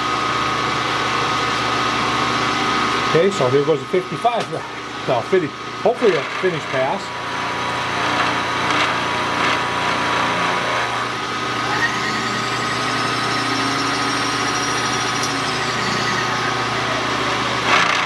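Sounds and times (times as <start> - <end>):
spindle motor hum: 0.0 - 18.0
high cutting tone: 11.0 - 17.7.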